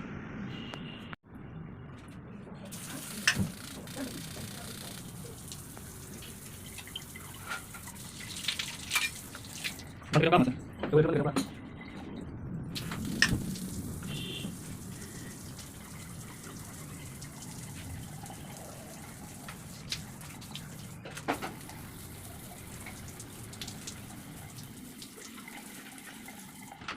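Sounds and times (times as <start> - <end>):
water running from tap: 2.7 - 10.0, 12.8 - 26.9.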